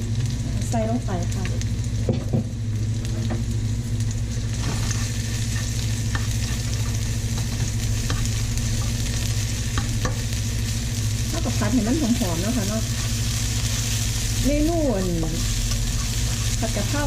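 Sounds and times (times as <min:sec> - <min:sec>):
chili and garlic sizzling in oil: 0:00.0 - 0:17.0
steady low hum: 0:00.0 - 0:17.0
utensil scraping against pan: 0:04.6 - 0:09.2, 0:12.5 - 0:14.0, 0:14.9 - 0:17.0.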